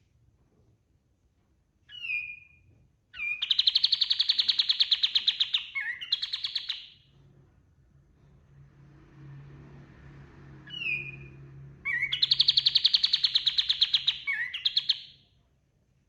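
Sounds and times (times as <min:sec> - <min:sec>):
bird singing whistle and trill: 0:01.9 - 0:02.6, 0:03.2 - 0:07.0, 0:10.7 - 0:15.2.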